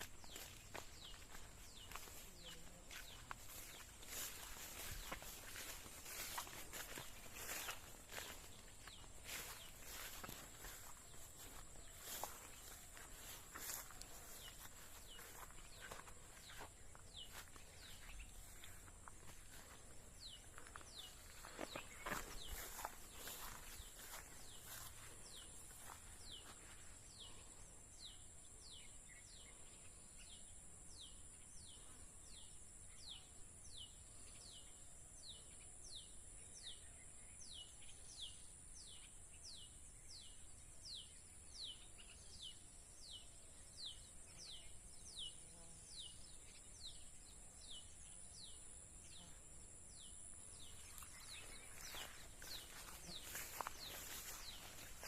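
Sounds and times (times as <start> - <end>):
rustling footsteps: 0.0 - 27.0, 50.6 - 55.0.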